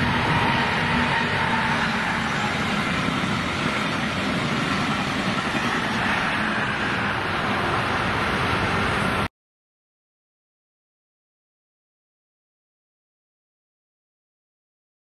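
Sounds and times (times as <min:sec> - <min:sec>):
train passing at speed: 0:00.0 - 0:09.3.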